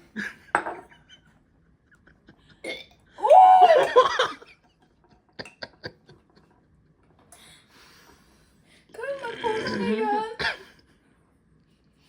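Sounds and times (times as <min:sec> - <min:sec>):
person's throaty drawn-out vocal sound: 0:09.2 - 0:10.1.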